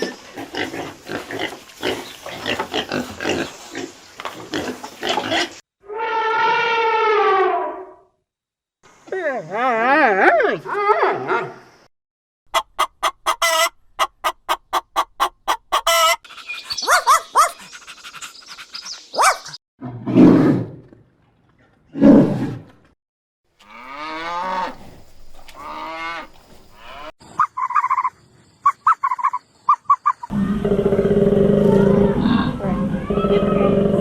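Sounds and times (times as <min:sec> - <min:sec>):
animal calls: 0:12.6 - 0:19.6, 0:25.5 - 0:34.0.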